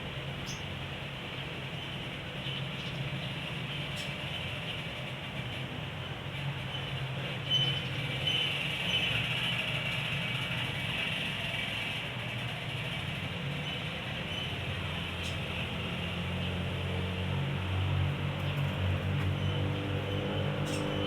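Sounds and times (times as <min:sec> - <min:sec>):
faint high songbird chirps: 0:00.4 - 0:00.7, 0:06.7 - 0:09.2, 0:19.3 - 0:21.0.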